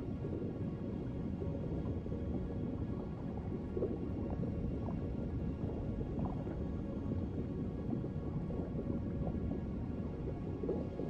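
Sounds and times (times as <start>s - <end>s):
soft ambient music: 0.0s - 11.0s
underwater ambience: 0.0s - 11.0s.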